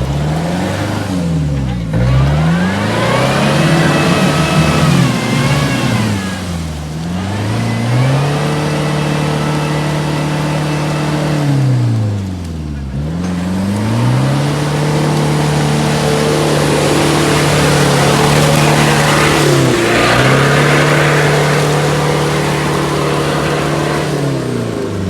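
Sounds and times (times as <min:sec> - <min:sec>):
suv engine at high revs: 0:00.0 - 0:25.0
rushing hiss: 0:14.7 - 0:24.4.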